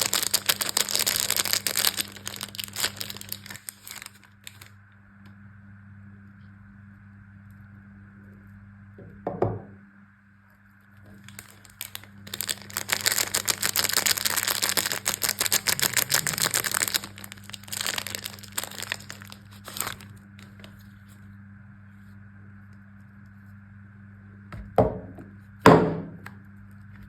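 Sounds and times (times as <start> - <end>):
wrapper crinkling: 0.0 - 4.7, 11.2 - 20.9.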